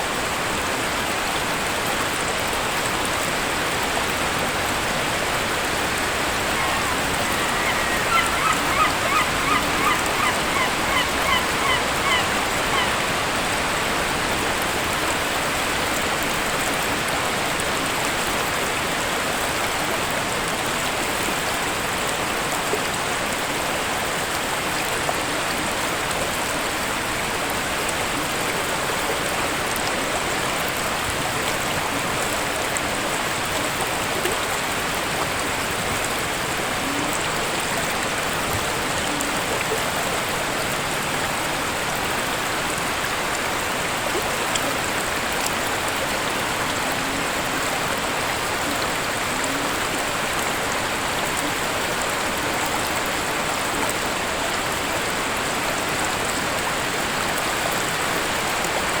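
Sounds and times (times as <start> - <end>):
waterfall rushing: 0.0 - 59.0
bird honking calls: 5.8 - 13.4.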